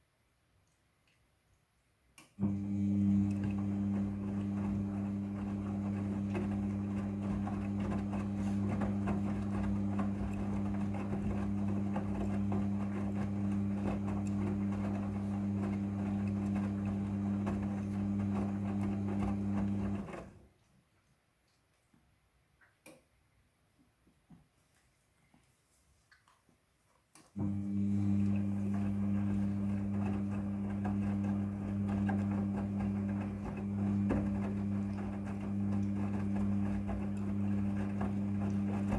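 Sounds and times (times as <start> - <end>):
washing machine running: 2.4 - 20.4, 27.4 - 38.9.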